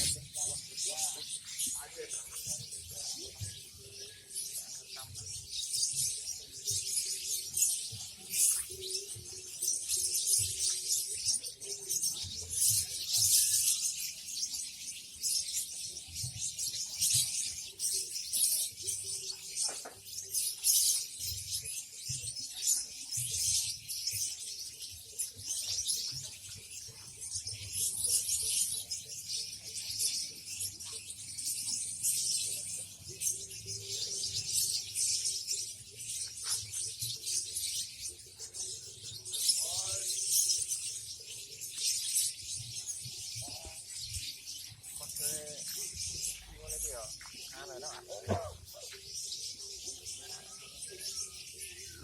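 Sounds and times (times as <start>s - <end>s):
lovebirds twittering: 0.0s - 52.0s.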